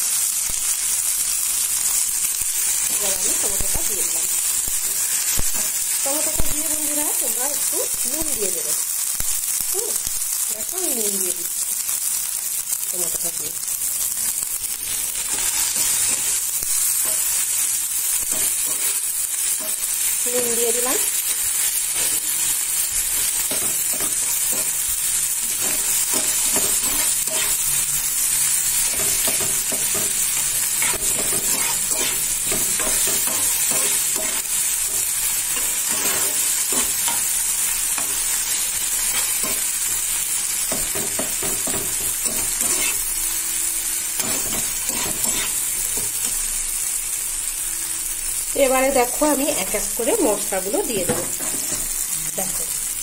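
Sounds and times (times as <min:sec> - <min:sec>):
vegetables sizzling in oil: 0:00.0 - 0:53.0
spatula scraping a pan: 0:21.7 - 0:27.9, 0:28.8 - 0:37.3, 0:40.7 - 0:43.1, 0:44.2 - 0:46.1, 0:51.0 - 0:52.0.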